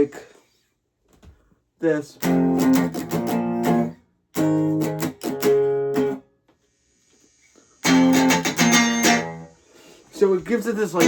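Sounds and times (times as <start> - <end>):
electric guitar strummed chords: 2.2 - 6.2, 7.8 - 9.5.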